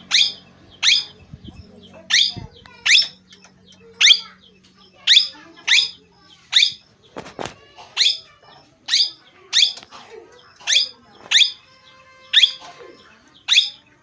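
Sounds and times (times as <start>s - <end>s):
parrot shrill calls: 0.0s - 1.2s, 2.1s - 3.2s, 4.0s - 4.4s, 5.0s - 9.9s, 10.6s - 14.0s.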